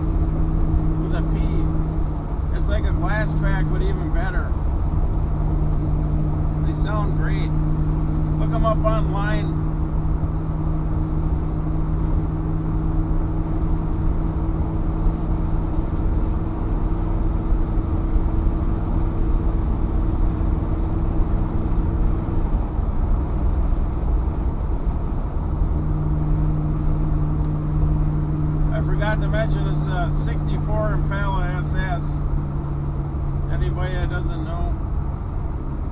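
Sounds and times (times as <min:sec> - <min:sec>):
car engine droning at cruise: 0:00.0 - 0:35.9.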